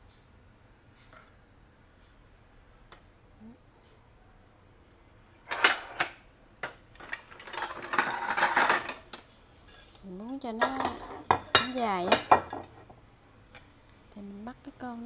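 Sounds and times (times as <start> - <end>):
dishes clinking and knocking: 5.5 - 6.2, 7.0 - 9.1, 10.6 - 13.0
dishes rattling: 5.5 - 6.2, 7.0 - 9.1, 10.6 - 13.0.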